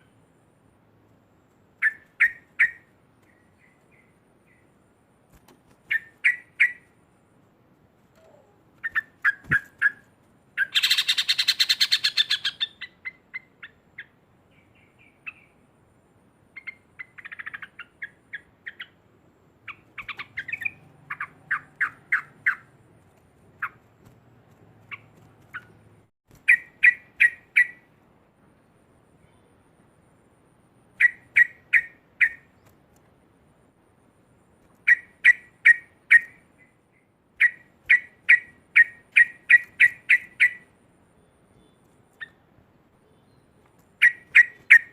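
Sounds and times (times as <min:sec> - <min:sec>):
bird chirping and chattering: 0:05.9 - 0:06.9, 0:10.6 - 0:15.5, 0:16.6 - 0:19.0, 0:19.6 - 0:22.8, 0:24.8 - 0:25.8, 0:37.4 - 0:40.7, 0:44.0 - 0:44.9.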